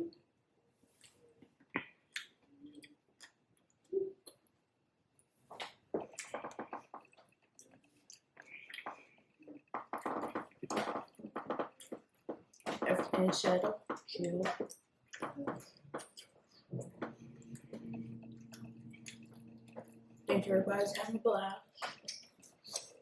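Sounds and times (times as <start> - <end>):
person chewing food: 0.9 - 4.5, 5.2 - 12.8, 13.8 - 20.3.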